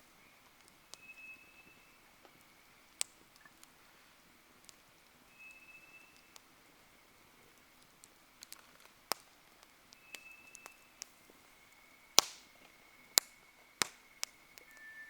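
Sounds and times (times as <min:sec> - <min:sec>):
campfire crackling: 0:00.0 - 0:15.0
sharp loud fire pops: 0:12.2 - 0:12.5.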